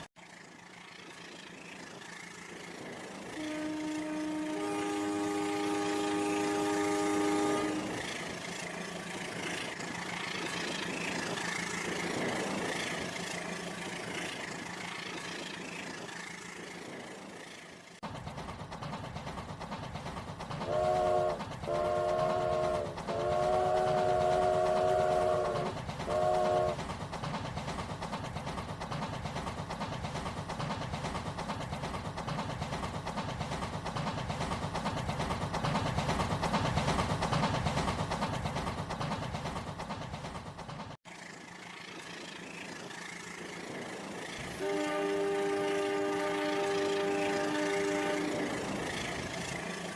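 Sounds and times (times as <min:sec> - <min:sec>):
train wheels clattering: 0:00.0 - 0:49.9
train horn: 0:03.3 - 0:08.1, 0:20.6 - 0:26.8, 0:44.4 - 0:48.8.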